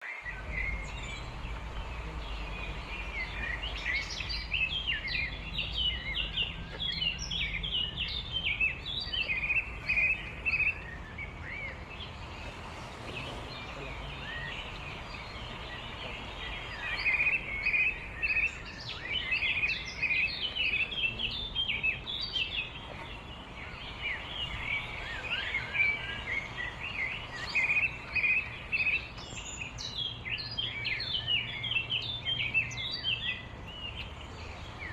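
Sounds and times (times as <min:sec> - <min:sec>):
songbirds chirping and twittering: 0:00.0 - 0:34.9
low steady rumble: 0:00.3 - 0:20.0.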